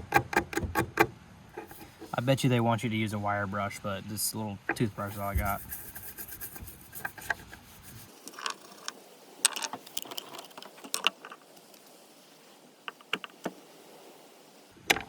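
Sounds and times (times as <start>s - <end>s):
camp cooking gear handled: 1.6s - 2.2s, 6.5s - 11.9s, 12.9s - 13.6s
mussel shells clicking: 8.3s - 11.8s, 12.9s - 13.5s.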